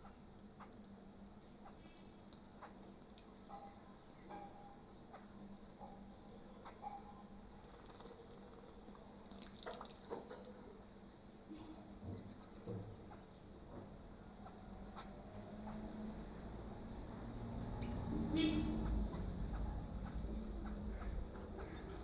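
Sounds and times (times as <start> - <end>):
birds splashing in water: 7.7 - 10.5.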